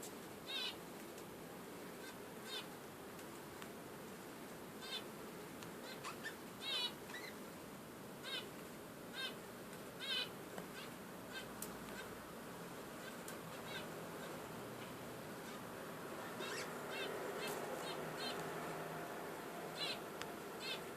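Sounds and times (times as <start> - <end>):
faint steady hiss: 0.0 - 20.9
budgerigars warbling chirps: 0.5 - 0.8, 2.0 - 2.7, 4.8 - 5.1, 5.8 - 7.4, 8.2 - 8.5, 9.2 - 9.4, 10.0 - 12.1, 13.0 - 15.6, 16.2 - 18.4, 19.8 - 20.0, 20.6 - 20.9.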